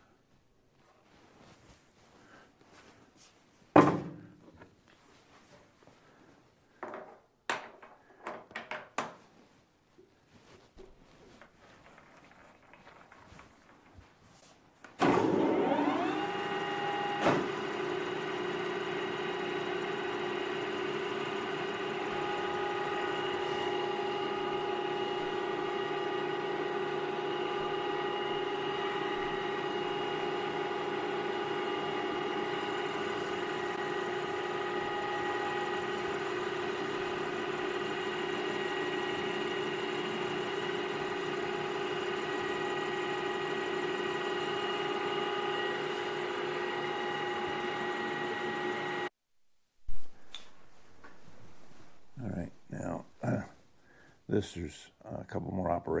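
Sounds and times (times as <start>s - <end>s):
metal lathe motor whining: 15.0s - 49.1s.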